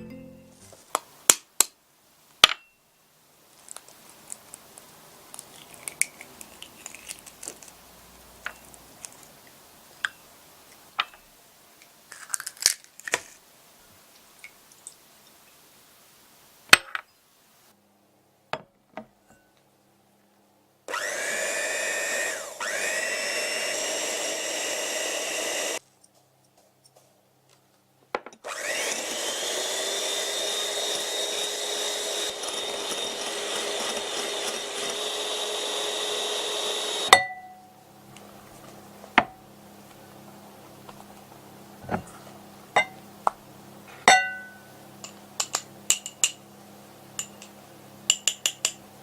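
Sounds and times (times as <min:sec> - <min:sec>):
small electric motor running: 0:20.9 - 0:25.8, 0:28.5 - 0:37.1.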